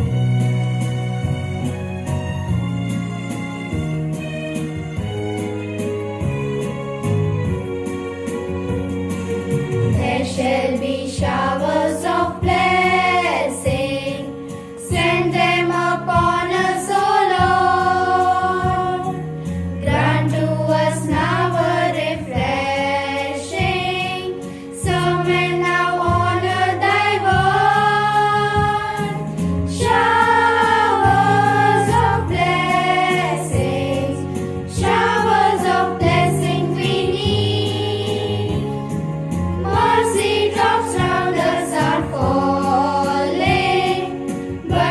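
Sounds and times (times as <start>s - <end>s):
instrumental accompaniment: 0.0s - 44.9s
choir singing: 10.0s - 39.0s, 39.6s - 44.9s.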